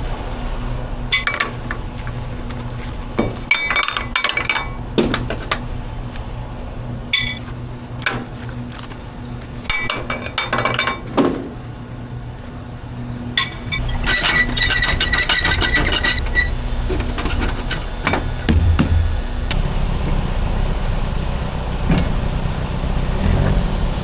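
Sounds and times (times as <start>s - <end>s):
metallic clinks and clanks: 3.2s - 5.6s, 7.1s - 8.2s, 9.7s - 11.2s
low engine hum: 16.6s - 24.0s.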